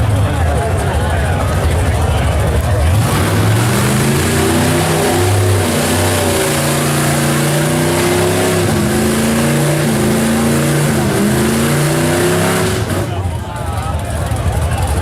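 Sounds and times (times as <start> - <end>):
engine running at high revs: 2.6 - 13.6.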